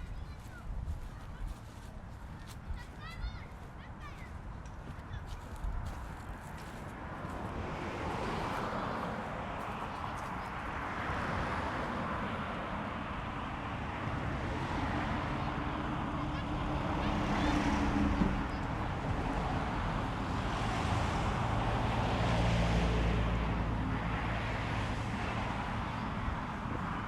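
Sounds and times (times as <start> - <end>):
motor vehicles passing: 0.0 - 27.0
wind gusting across microphone: 23.5 - 27.0.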